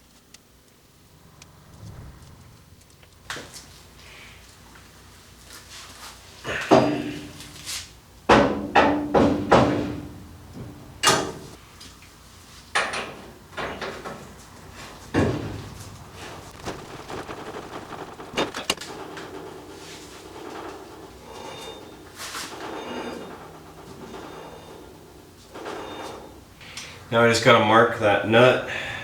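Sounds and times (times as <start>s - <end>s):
metal clunks and knocks: 8.3s - 11.5s, 15.1s - 21.1s.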